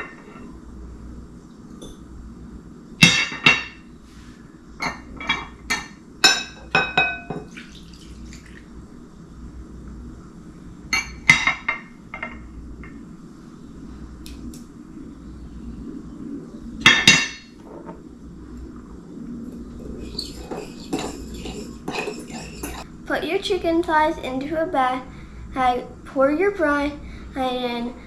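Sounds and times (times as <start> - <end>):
utensil clinking against bowl: 20.0 - 22.8.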